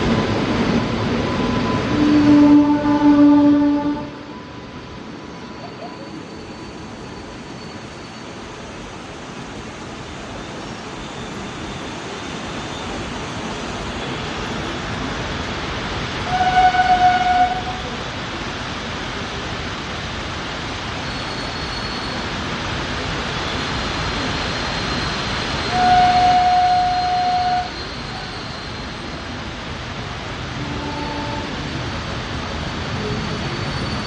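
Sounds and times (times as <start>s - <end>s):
train running in rain: 0.0s - 34.0s
train horn blasts: 1.3s - 4.6s, 16.2s - 18.0s, 25.6s - 28.3s, 30.6s - 31.6s.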